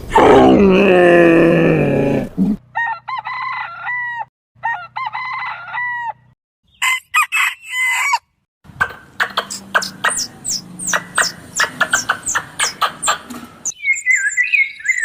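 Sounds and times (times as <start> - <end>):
deep falling animal call: 0.1 - 2.6
rooster crowing: 2.7 - 8.3.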